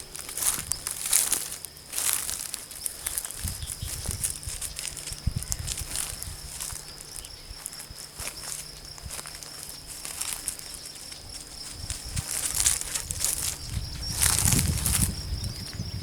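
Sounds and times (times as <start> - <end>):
insect trilling: 0.0 - 16.0
rustling in dry vegetation: 0.0 - 16.0.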